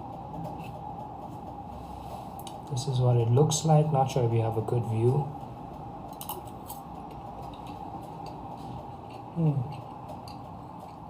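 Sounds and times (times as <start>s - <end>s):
background hum: 0.0s - 11.0s.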